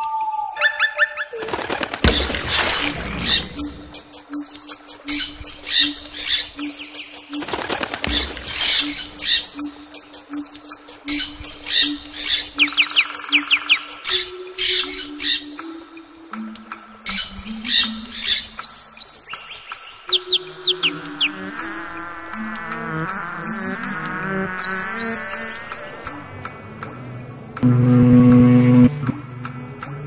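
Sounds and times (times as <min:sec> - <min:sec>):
birds squawking: 0:00.6 - 0:15.8, 0:17.1 - 0:22.2, 0:24.0 - 0:26.2
rising bird chirps: 0:24.6 - 0:25.9.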